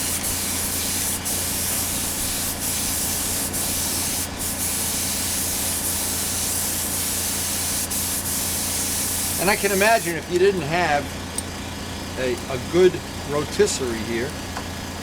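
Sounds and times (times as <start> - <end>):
paint spray hissing: 0.0 - 10.2.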